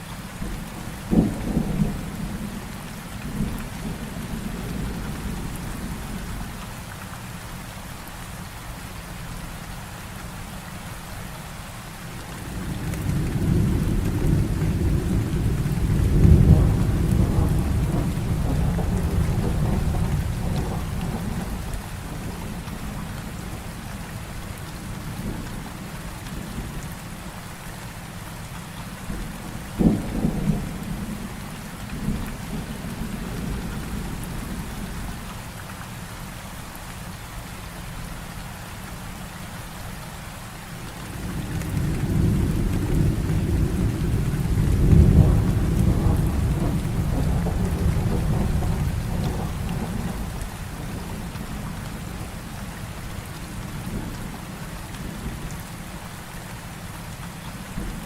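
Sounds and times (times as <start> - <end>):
heavy rain: 0.0 - 58.0
rolling thunder: 12.4 - 23.6, 29.1 - 35.1, 41.0 - 55.4
sharp thunderclap: 12.7 - 21.6, 41.2 - 51.3.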